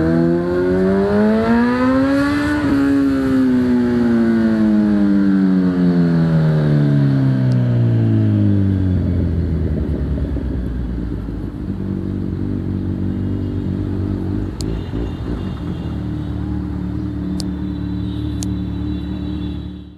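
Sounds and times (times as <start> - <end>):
motorcycle engine idling: 7.7 - 19.8.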